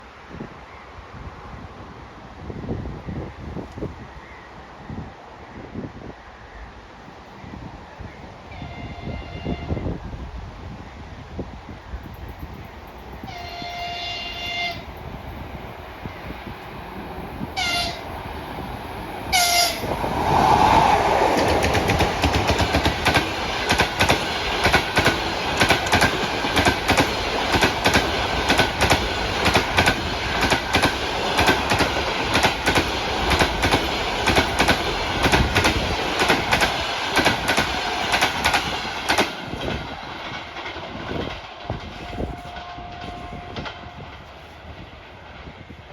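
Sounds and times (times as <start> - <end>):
train passing at speed: 0.0 - 45.9
locomotive horn blasts: 8.5 - 10.0, 13.3 - 14.9, 17.6 - 18.1, 19.3 - 19.9, 41.9 - 44.1
wheels clicking over rail joints: 21.2 - 45.4.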